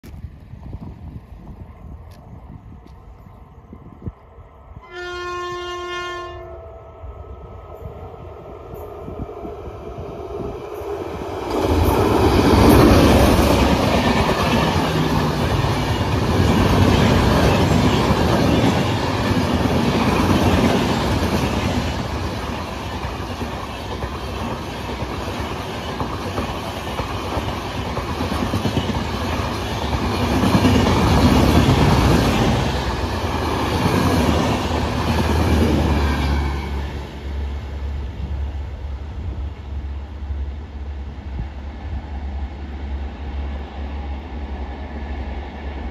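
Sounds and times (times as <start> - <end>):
train wheel and rail roar: 0.0 - 45.9
train horn: 4.8 - 7.0.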